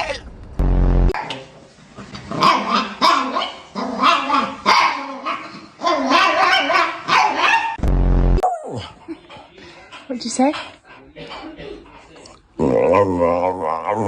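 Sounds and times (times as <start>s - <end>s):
brief low rumble: 7.8s - 8.4s.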